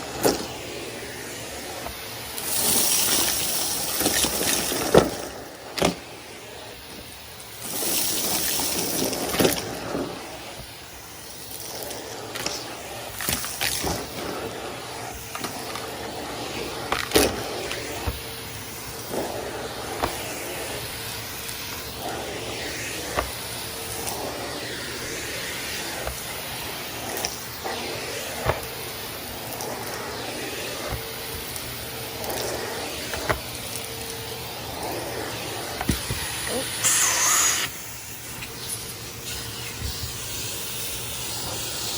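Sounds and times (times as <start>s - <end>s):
vacuum cleaner running: 0.0s - 41.9s
debris clicking in vacuum hose: 1.8s - 6.0s, 11.5s - 14.4s, 15.0s - 22.1s.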